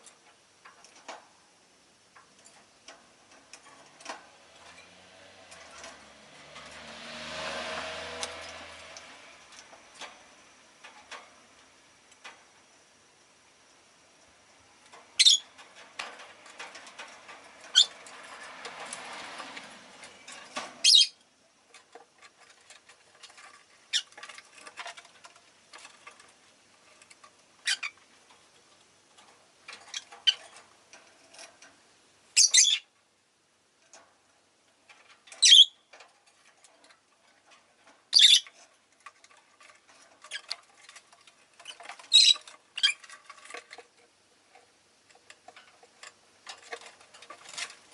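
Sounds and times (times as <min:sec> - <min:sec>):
soft bird chirps: 0:32.4 - 0:32.9, 0:38.1 - 0:38.5
lovebirds shrieking: 0:38.2 - 0:38.4, 0:42.1 - 0:43.0.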